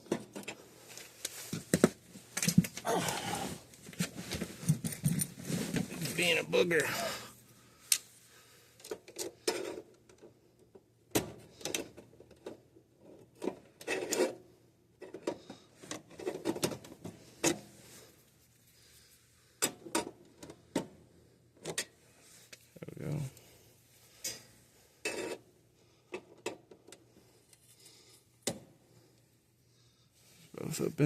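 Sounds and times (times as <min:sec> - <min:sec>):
wires clicking and scraping: 0:00.0 - 0:06.9, 0:11.5 - 0:14.4, 0:21.6 - 0:28.3.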